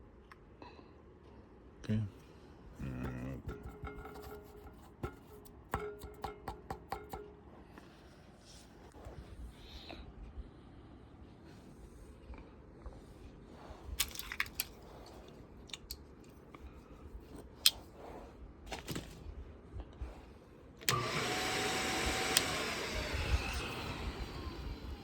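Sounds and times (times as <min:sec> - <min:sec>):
parts being handled: 0:03.4 - 0:08.8, 0:13.8 - 0:18.0
small electric motor running: 0:20.9 - 0:25.0.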